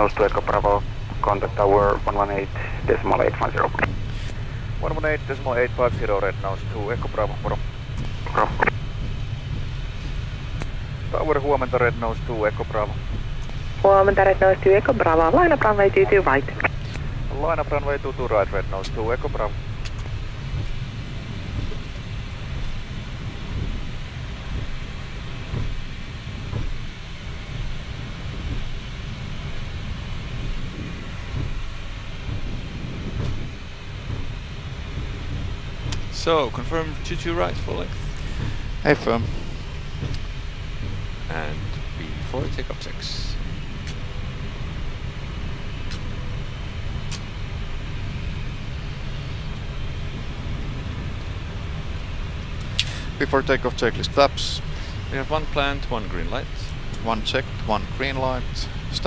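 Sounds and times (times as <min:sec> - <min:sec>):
faint clicks: 0:00.0 - 0:23.8, 0:30.3 - 0:59.0
air-conditioning hiss: 0:00.0 - 0:59.0
jet engines idling rumble: 0:00.0 - 0:59.0.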